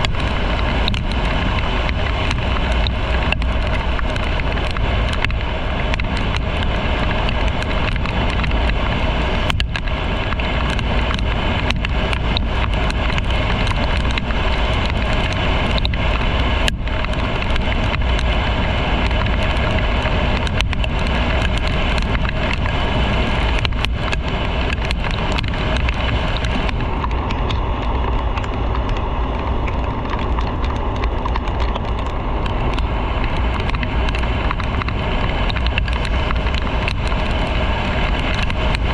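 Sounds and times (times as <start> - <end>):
deep rumble: 0.0 - 38.9
motorcycle road noise: 0.0 - 38.9.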